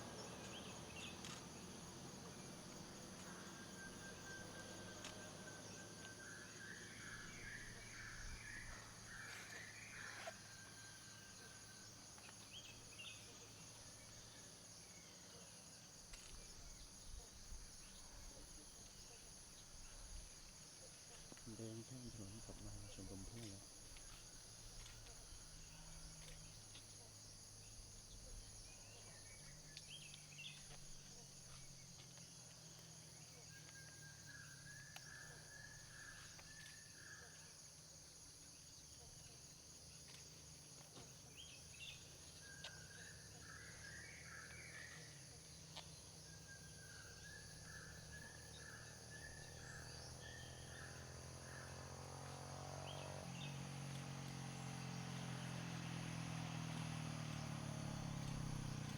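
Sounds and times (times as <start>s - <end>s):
vehicle approaching: 0.0s - 9.1s, 47.9s - 58.9s
insects trilling: 0.0s - 58.9s.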